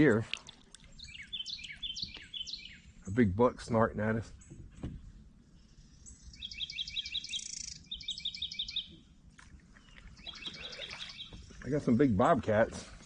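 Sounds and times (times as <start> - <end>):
songbird singing high notes: 0.9 - 2.9, 6.0 - 9.0.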